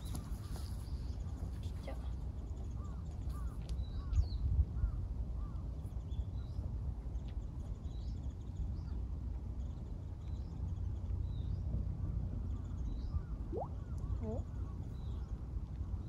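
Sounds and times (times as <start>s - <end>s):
birds chirping: 12.4s - 15.4s.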